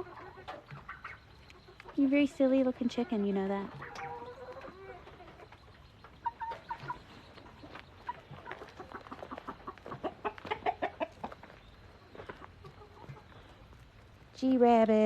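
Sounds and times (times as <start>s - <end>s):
chickens clucking: 0.0s - 14.2s
chicken squawks: 6.2s - 11.3s.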